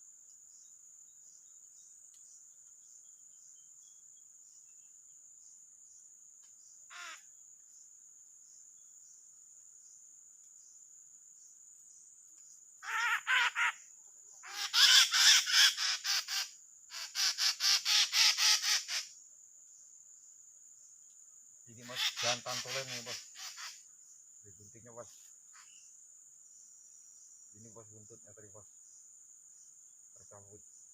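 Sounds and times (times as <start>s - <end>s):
high insect drone: 0.0s - 30.9s
bird giving harsh repeated calls: 6.9s - 7.2s, 12.8s - 13.8s, 14.4s - 19.0s, 21.8s - 23.8s.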